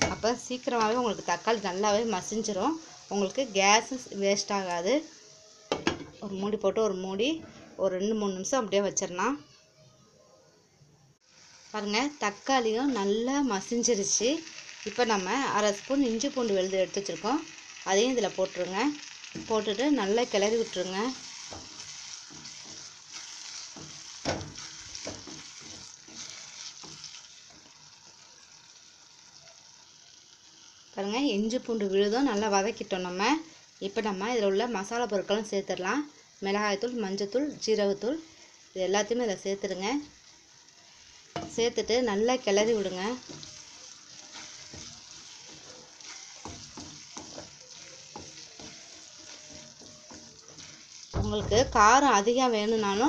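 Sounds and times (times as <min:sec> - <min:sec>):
masala sizzling in a pan: 0:00.0 - 0:09.5, 0:11.2 - 0:53.0
spoon scraping against pan: 0:19.0 - 0:28.3, 0:42.8 - 0:51.1.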